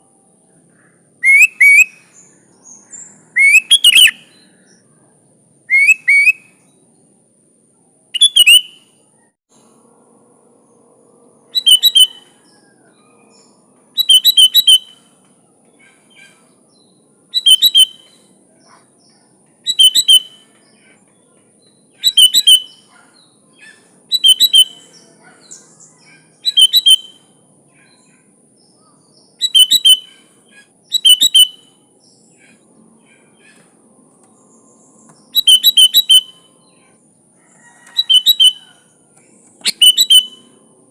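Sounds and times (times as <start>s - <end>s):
bird calling: 0.7s - 4.6s, 5.7s - 6.6s, 8.2s - 9.3s, 11.5s - 16.6s, 17.3s - 18.9s, 19.6s - 21.3s, 21.9s - 33.8s, 34.5s - 40.6s.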